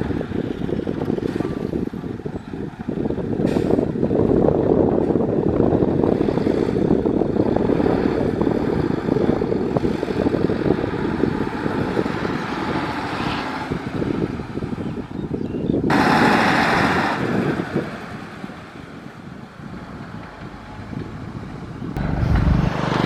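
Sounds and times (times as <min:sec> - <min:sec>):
construction machinery engine rumble: 0:00.0 - 0:16.4, 0:17.4 - 0:23.0.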